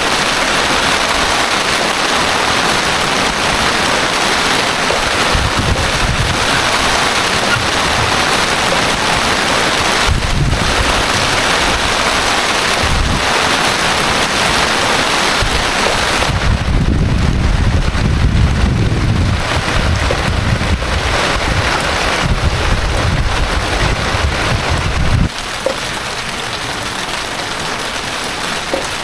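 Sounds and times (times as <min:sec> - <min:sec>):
heavy rain hissing: 0:00.0 - 0:29.0
low rumbles: 0:02.3 - 0:25.4.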